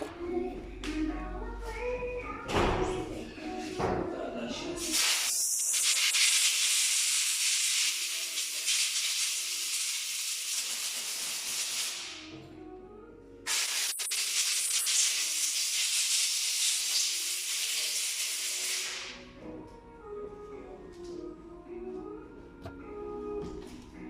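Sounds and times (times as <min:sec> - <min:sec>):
high-pitched pressurised jet hiss: 0:04.9 - 0:12.3.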